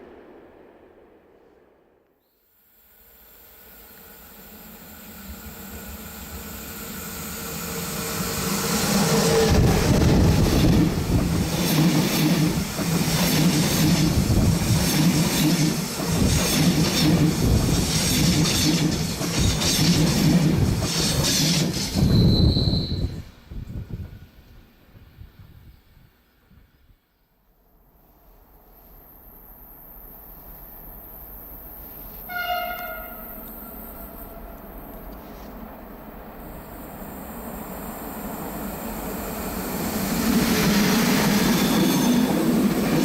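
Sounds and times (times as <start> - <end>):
train wheels rumbling on rail: 3.8 - 25.6, 30.4 - 43.0
high wheel squeal: 22.0 - 23.2, 41.3 - 42.4.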